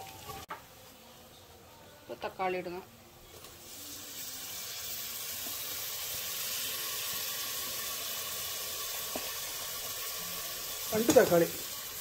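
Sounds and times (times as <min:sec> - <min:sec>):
tomatoes sizzling in hot oil: 0:02.4 - 0:12.0.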